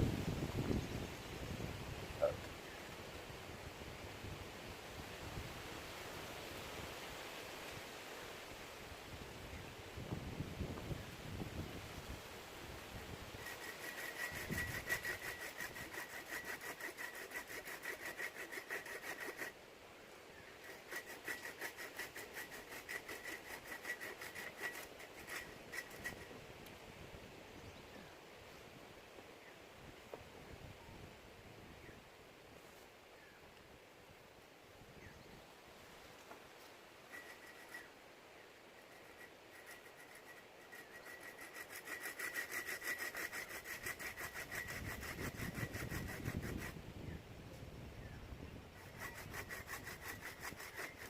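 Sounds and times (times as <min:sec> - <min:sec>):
hand tool rasping wood: 0:13.4 - 0:19.6, 0:20.5 - 0:26.4, 0:37.1 - 0:37.9, 0:38.8 - 0:46.8, 0:48.8 - 0:51.0.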